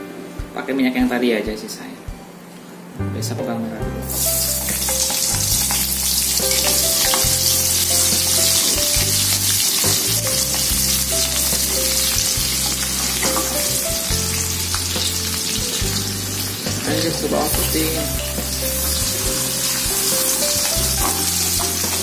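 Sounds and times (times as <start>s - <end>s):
background music: 0.0s - 22.0s
shallots sizzling in hot oil: 4.1s - 22.0s.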